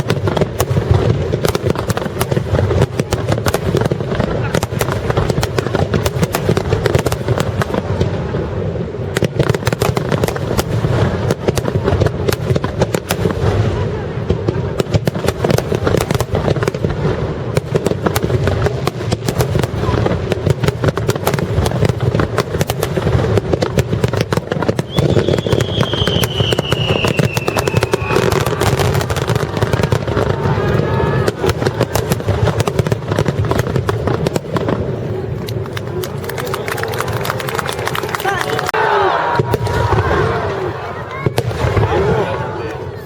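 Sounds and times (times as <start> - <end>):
fireworks crackling and banging: 0.0 - 43.0
falling firework whistle: 24.6 - 32.1.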